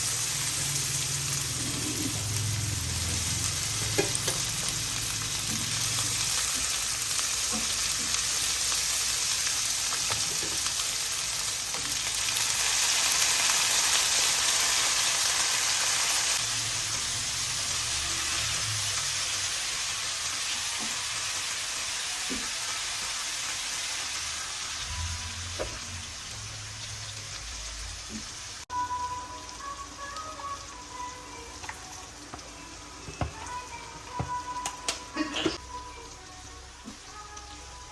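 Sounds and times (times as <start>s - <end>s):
food sizzling in oil: 0.0s - 37.9s
faint music: 28.7s - 37.9s.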